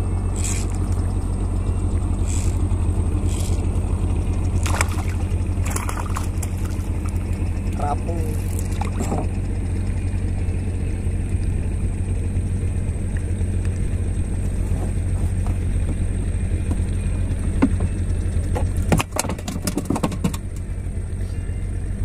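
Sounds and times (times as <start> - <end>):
boat engine droning: 0.0 - 22.0
knocks and clatter: 8.5 - 9.4, 16.6 - 20.7.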